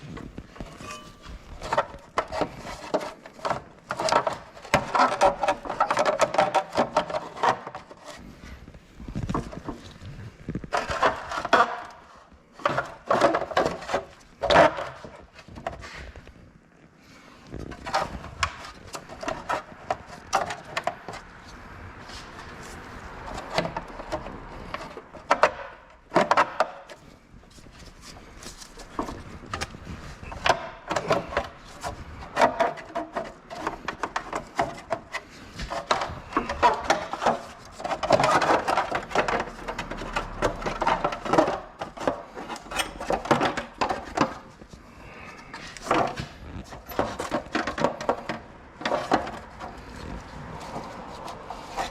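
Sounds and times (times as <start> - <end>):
scraping and rubbing: 0.0 - 51.9.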